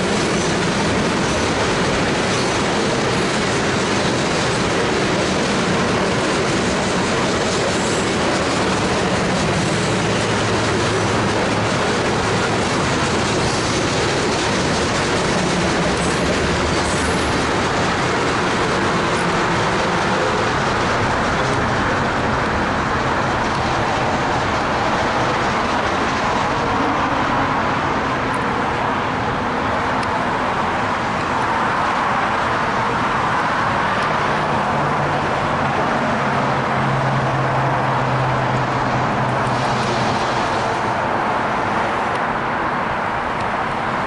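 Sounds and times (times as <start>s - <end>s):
diesel locomotive engine hum: 0.0s - 44.0s
freight train wheel noise: 0.0s - 44.0s
road traffic: 0.0s - 44.0s.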